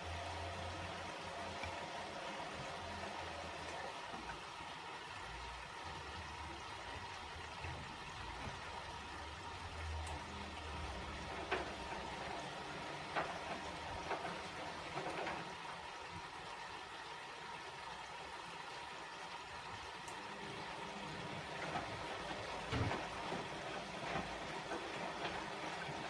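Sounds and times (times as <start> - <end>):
washing machine water sloshing: 0.0 - 26.0
washing machine knocks: 21.1 - 26.0.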